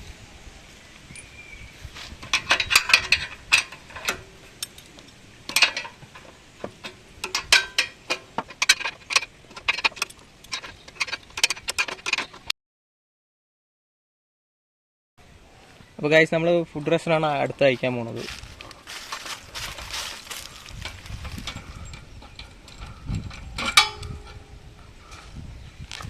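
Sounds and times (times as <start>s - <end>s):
hand tools clinking on metal: 2.2s - 12.5s, 18.3s - 24.6s.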